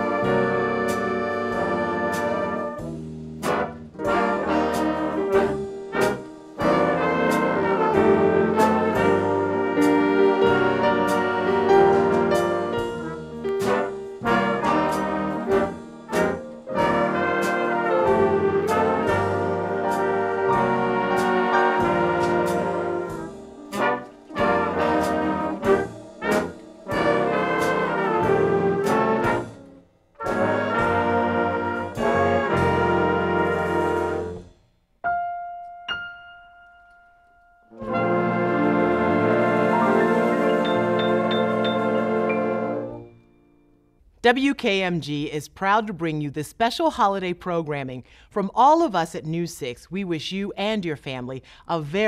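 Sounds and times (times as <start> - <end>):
brass ensemble playing: 0.0 - 34.6, 37.7 - 43.2.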